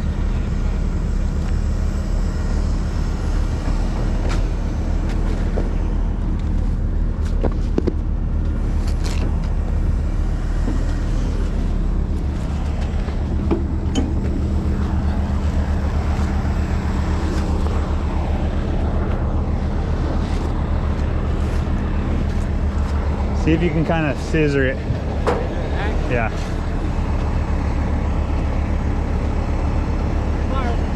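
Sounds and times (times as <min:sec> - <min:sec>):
diesel truck engine idling: 0:00.0 - 0:30.9.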